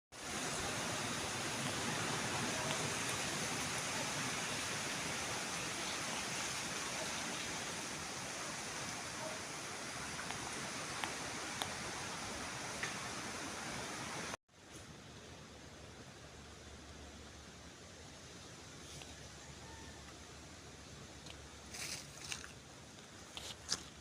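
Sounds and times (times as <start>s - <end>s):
water spraying from garden hose: 0.2s - 13.2s.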